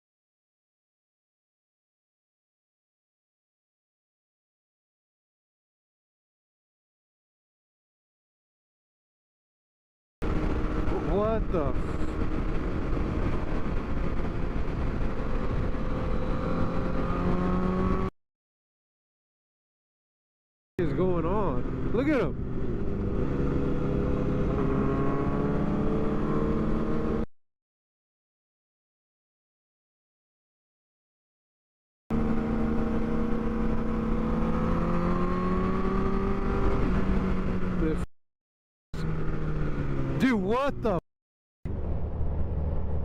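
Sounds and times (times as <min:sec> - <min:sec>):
car road and engine noise: 0:10.2 - 0:18.1, 0:20.8 - 0:27.3, 0:32.1 - 0:38.1, 0:39.0 - 0:41.0, 0:41.7 - 0:43.0.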